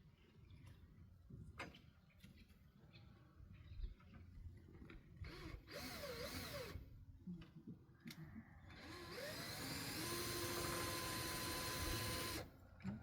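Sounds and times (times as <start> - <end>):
power drill motor running: 5.3 - 6.8, 8.8 - 12.5.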